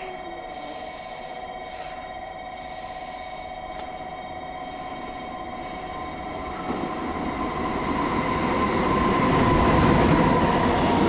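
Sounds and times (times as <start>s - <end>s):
freight train rumbling: 0.0s - 11.0s
high-pitched locomotive tones: 0.0s - 11.0s.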